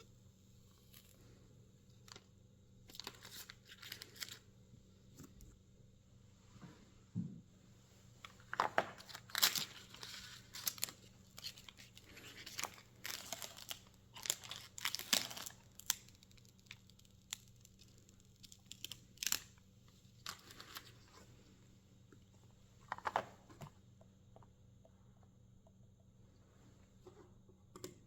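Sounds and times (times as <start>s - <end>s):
packaging rustling: 2.9s - 4.4s, 8.4s - 19.6s.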